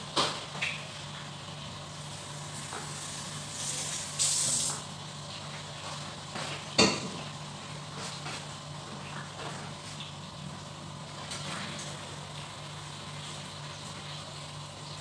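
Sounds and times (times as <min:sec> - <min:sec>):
food sizzling in a wok: 0:02.0 - 0:05.0.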